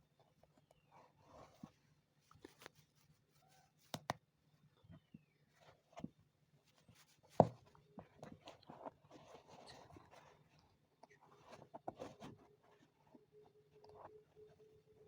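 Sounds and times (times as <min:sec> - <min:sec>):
scratchy rustling: 0:06.7 - 0:15.0.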